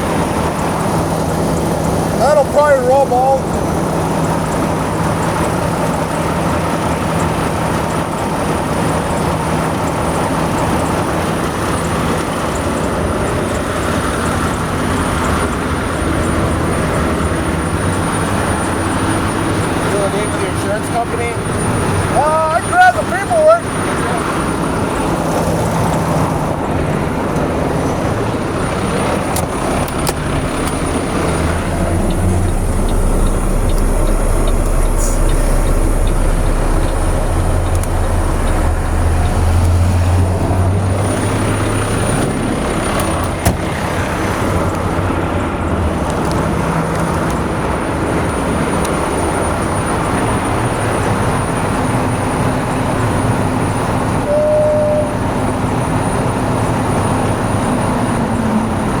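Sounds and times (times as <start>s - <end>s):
heavy vehicle engine rumbling: 0.0s - 59.0s
road traffic noise: 0.0s - 59.0s
short high beep: 54.3s - 55.3s.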